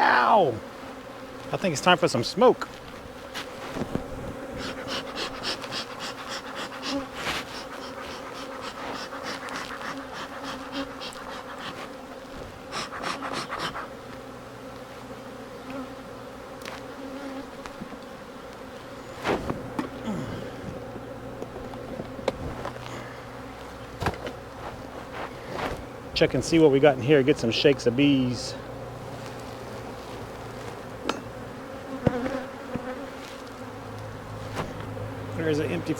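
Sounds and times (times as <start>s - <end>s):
bee smoker bellows hissing: 0.0s - 35.9s
honeybees buzzing: 0.0s - 35.9s.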